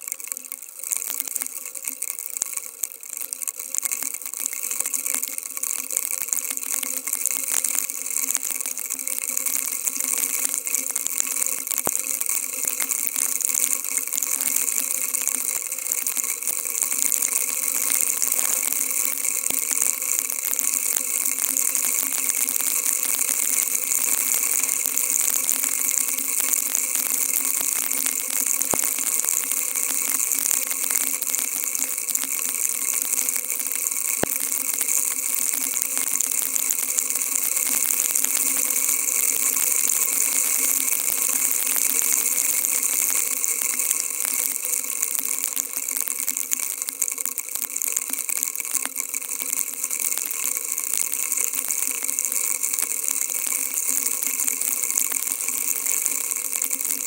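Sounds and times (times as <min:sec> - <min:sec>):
faint ticks: 0:00.0 - 0:57.0
heavy rain hissing: 0:18.1 - 0:19.2.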